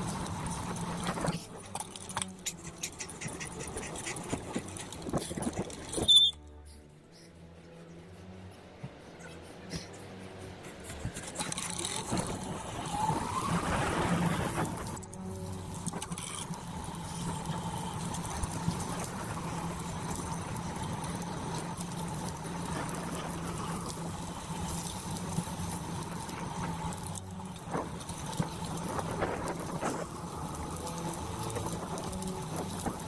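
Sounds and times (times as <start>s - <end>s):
bicycle tyres rolling on trail: 0.0s - 6.5s, 7.1s - 33.0s
sharp ticks: 1.7s - 6.8s
wind on camera: 27.5s - 33.0s.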